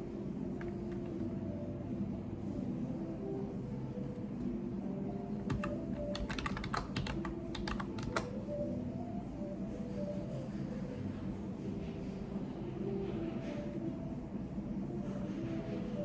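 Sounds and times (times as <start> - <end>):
low background hum: 0.0 - 16.0
typing on computer keyboard: 5.4 - 8.4.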